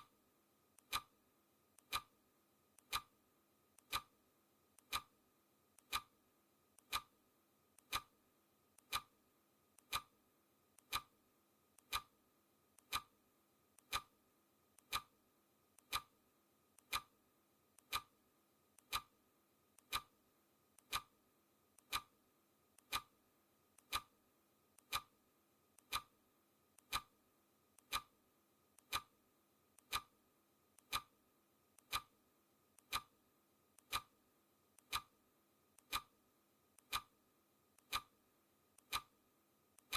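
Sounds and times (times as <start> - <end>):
clock ticking: 0.8 - 1.1, 1.8 - 2.1, 2.8 - 3.1, 3.8 - 4.2, 4.8 - 5.2, 5.8 - 6.2, 6.8 - 7.1, 7.8 - 8.1, 8.8 - 9.2, 9.8 - 10.2, 10.8 - 11.1, 11.8 - 12.2, 12.8 - 13.1, 13.8 - 14.1, 14.8 - 15.1, 15.8 - 16.2, 16.8 - 17.2, 17.8 - 18.2, 18.8 - 19.2, 19.8 - 20.2, 20.8 - 21.2, 21.8 - 22.2, 22.8 - 23.2, 23.8 - 24.2, 24.8 - 25.2, 25.8 - 26.2, 26.8 - 27.1, 27.8 - 28.2, 28.8 - 29.2, 29.8 - 30.2, 30.8 - 31.2, 31.8 - 32.2, 32.8 - 33.2, 33.8 - 34.2, 34.8 - 35.2, 35.8 - 36.2, 36.8 - 37.2, 37.8 - 38.2, 38.8 - 39.2.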